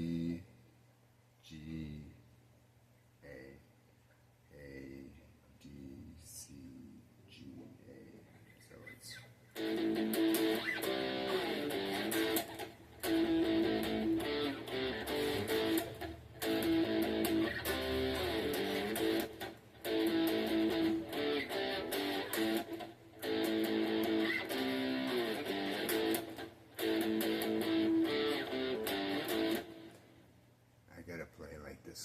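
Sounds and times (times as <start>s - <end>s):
guitar chords strummed and picked: 9.6s - 30.1s.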